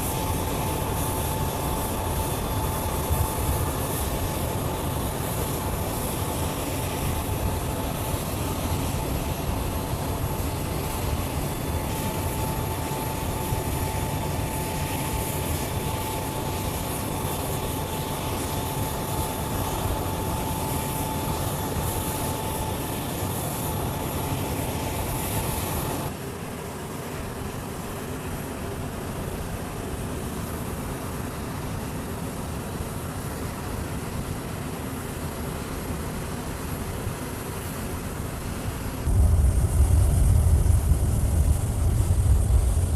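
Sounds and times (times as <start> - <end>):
jet engines running: 0.0 - 42.9
thin steady whine: 0.0 - 42.9.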